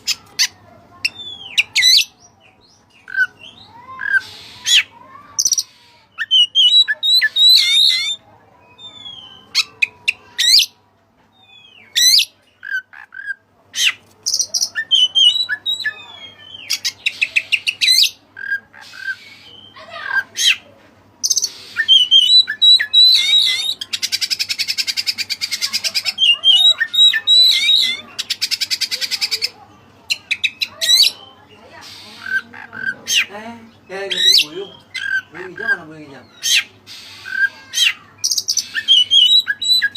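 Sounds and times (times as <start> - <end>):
harsh rattling bird trills: 3.0 - 8.2, 11.9 - 20.6, 21.2 - 39.9
bird singing whistles and chirps: 6.1 - 9.7, 21.3 - 23.8, 34.1 - 35.2, 36.4 - 39.9.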